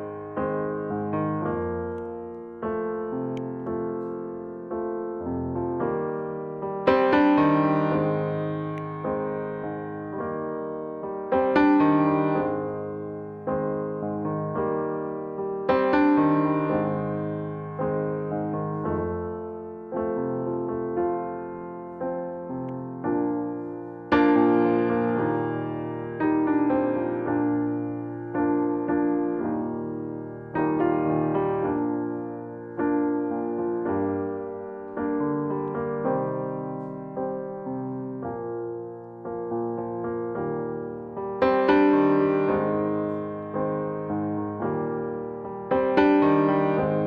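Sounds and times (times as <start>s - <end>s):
slow piano music: 0.0s - 47.0s.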